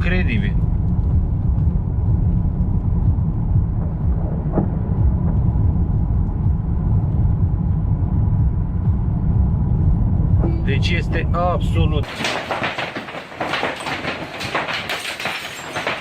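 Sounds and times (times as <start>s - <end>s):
loud low rumble: 0.0s - 12.1s.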